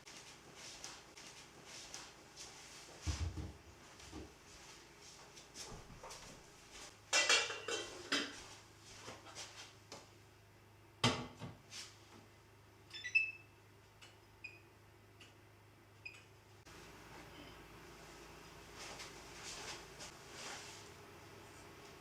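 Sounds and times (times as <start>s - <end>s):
kitchenware clattering: 7.1s - 8.5s.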